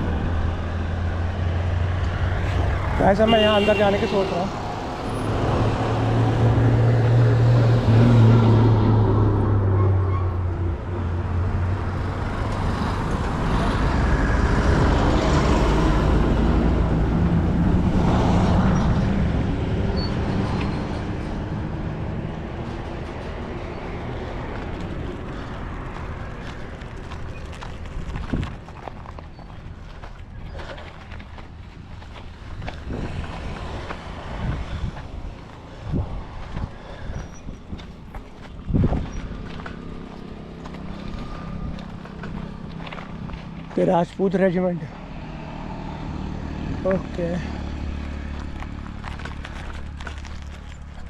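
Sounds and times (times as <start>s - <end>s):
vehicle engine droning: 0.0s - 51.0s
vehicles rushing past: 0.0s - 51.0s.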